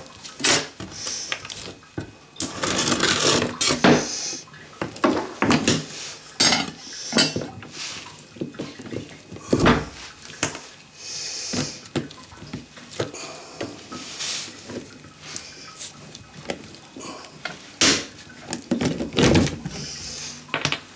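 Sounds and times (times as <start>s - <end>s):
short scraping sounds: 2.4s - 3.9s.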